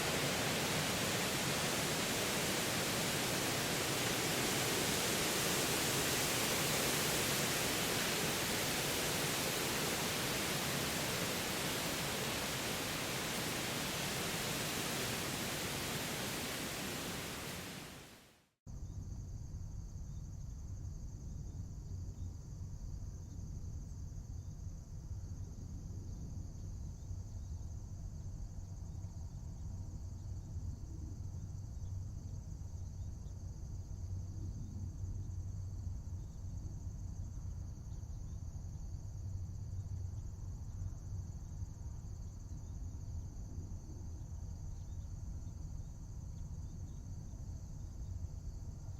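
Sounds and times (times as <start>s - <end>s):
crickets chirping: 0.0s - 18.1s, 18.7s - 48.9s
steady rushing noise: 0.0s - 18.2s.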